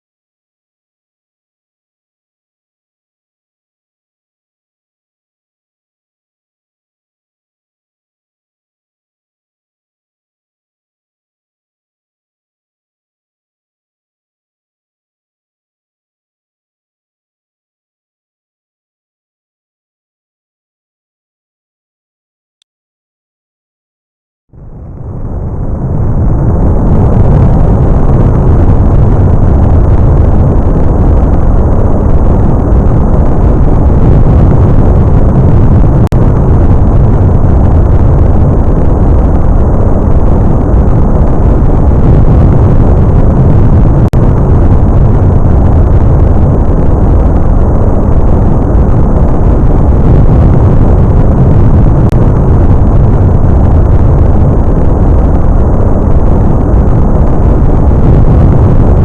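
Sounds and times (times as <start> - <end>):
rocket engine roaring: 24.6 - 59.0.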